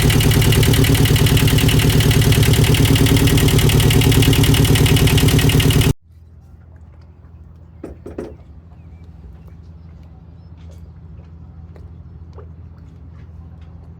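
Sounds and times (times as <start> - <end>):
small boat engine running: 0.0 - 6.0.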